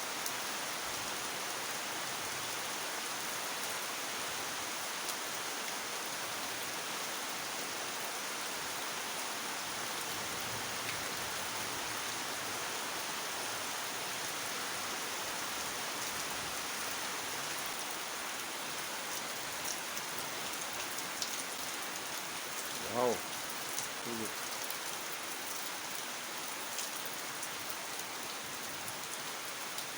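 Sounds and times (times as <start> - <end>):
heavy rain falling: 8.0 - 29.9.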